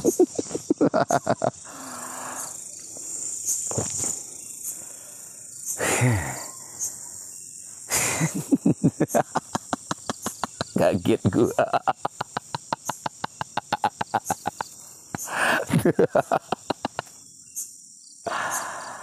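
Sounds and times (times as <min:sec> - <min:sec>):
crickets chirring: 0:00.0 - 0:19.0
quick rhythmic pulses: 0:09.1 - 0:15.3.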